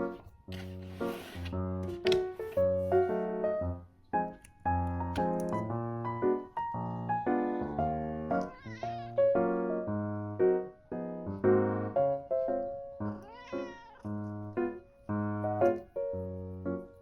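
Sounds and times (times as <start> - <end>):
soft lofi music: 0.0 - 9.9
cat meowing: 8.4 - 9.2, 13.2 - 14.1.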